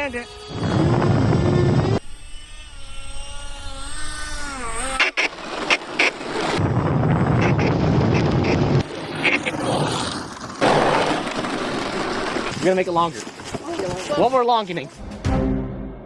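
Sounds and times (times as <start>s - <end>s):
model airplane motors whining: 0.0s - 6.6s.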